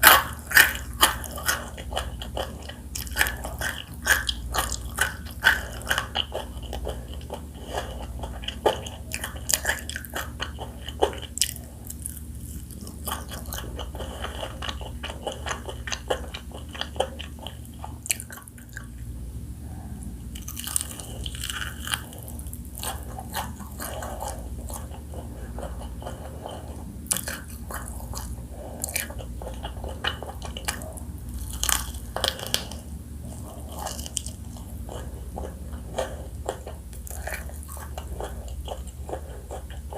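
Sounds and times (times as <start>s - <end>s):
chewing: 0.0s - 19.1s, 19.7s - 39.9s
crunching fried chicken: 0.0s - 19.1s, 20.3s - 39.9s.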